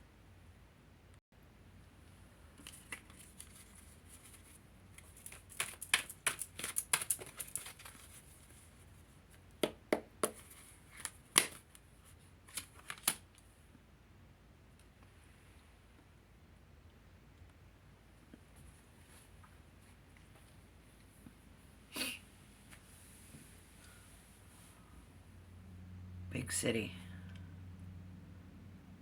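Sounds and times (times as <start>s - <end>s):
cards being shuffled: 2.6s - 8.3s, 10.2s - 11.9s, 12.5s - 13.2s.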